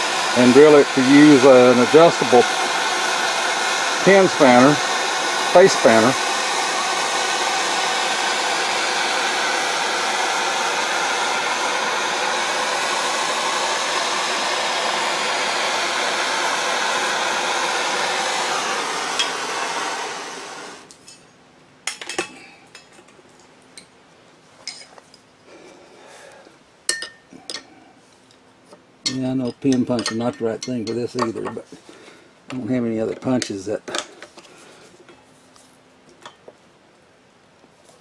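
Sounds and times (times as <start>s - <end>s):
heat gun blowing: 0.0s - 20.9s.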